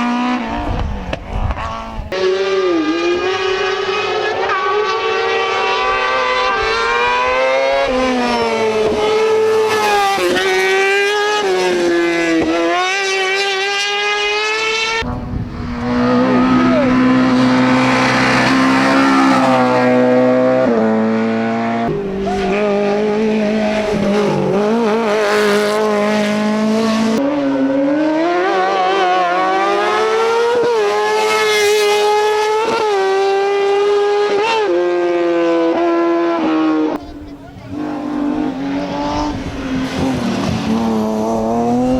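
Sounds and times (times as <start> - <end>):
race car engines accelerating: 0.0 - 41.9.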